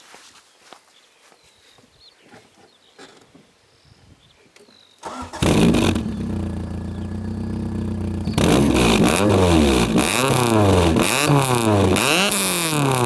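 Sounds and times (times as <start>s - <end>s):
car engine starting and idling: 5.0s - 13.0s.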